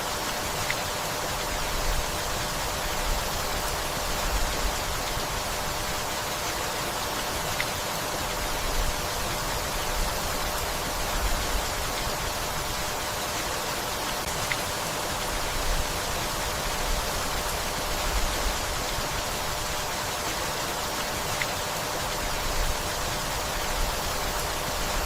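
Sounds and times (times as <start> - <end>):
steady rainfall: 0.0 - 25.0
faint sharp drips: 14.3 - 19.5.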